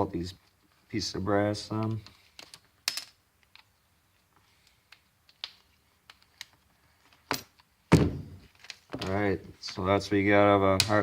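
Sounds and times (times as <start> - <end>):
small clicks and taps: 4.6 - 7.7.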